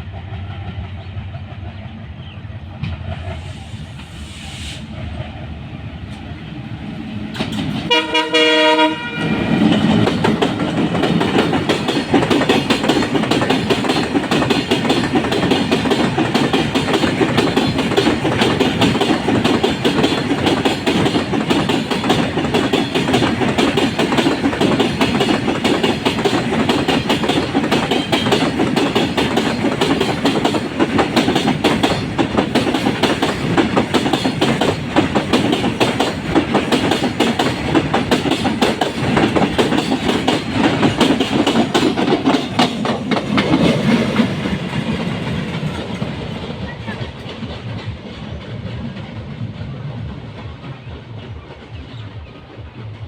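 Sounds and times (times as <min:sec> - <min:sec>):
train wheels clattering over rail joints: 0:07.3 - 0:08.1, 0:09.5 - 0:49.3.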